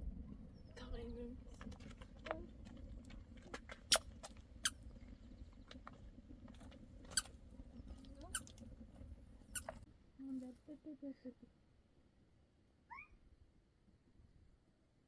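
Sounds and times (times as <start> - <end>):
low background rumble: 0.0 - 10.2.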